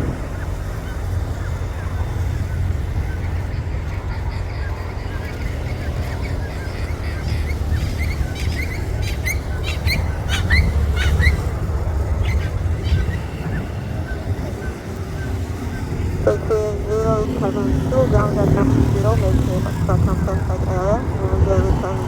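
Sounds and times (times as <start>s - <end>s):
birds chirping: 0.0s - 22.0s
steady low rumble: 0.0s - 22.0s.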